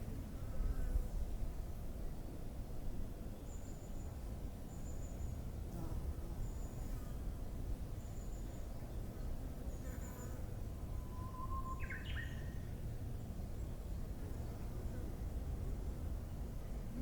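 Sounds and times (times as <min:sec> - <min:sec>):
low background noise: 0:00.0 - 0:17.0
faint high bird chirps: 0:10.9 - 0:12.7
bush warbler singing: 0:11.5 - 0:12.6.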